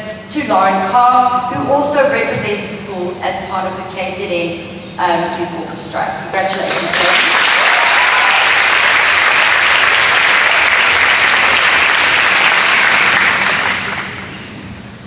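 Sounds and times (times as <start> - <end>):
audience clapping: 6.5 - 14.5.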